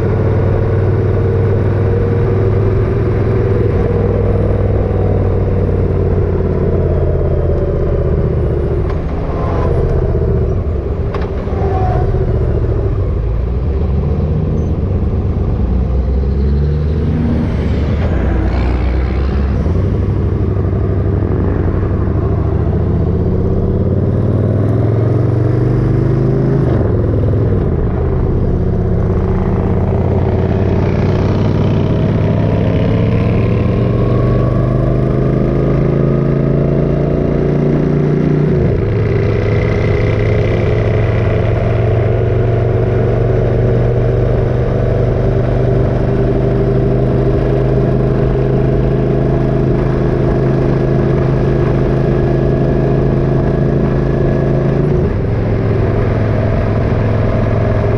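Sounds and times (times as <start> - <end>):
motorcycle engine accelerating: 0.0 - 57.9
road and wind noise: 0.0 - 57.9.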